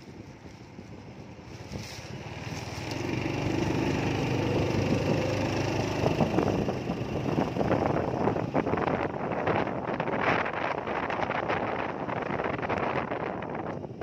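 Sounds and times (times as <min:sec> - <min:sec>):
small engine running: 0:01.5 - 0:09.0.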